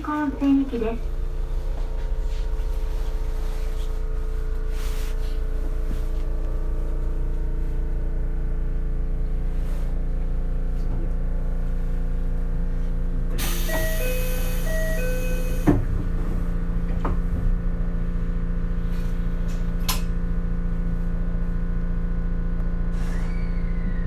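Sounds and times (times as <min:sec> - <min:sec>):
railcar electrical hum: 0:00.0 - 0:24.0.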